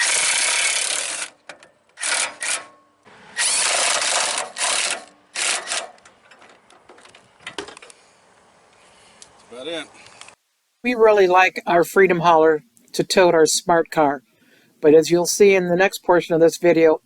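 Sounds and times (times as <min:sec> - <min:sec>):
crank mechanism grinding: 0:00.0 - 0:07.2.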